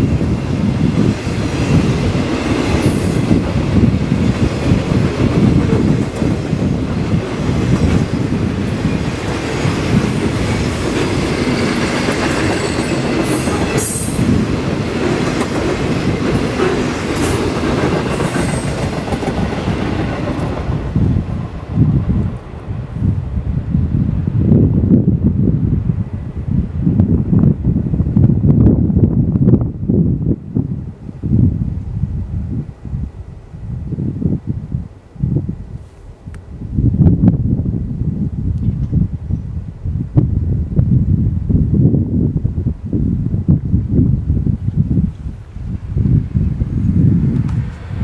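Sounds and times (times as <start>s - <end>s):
train wheels rumbling on rails: 0.0s - 48.0s.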